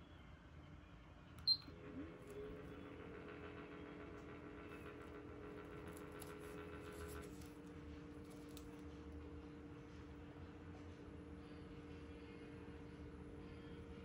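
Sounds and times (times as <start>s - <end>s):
fan motor whine and hum: 0.0s - 14.0s.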